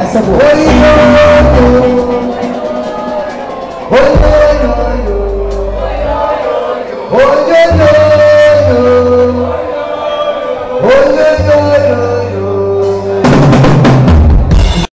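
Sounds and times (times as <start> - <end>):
bass guitar: 0.0 - 2.9, 3.9 - 6.4
drum fill: 0.0 - 6.4, 12.8 - 14.9.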